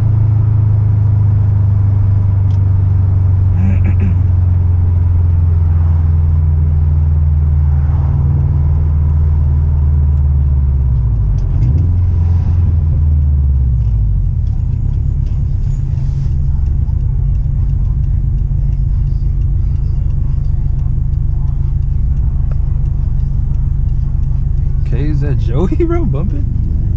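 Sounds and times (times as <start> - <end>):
car engine running: 0.0 - 26.9.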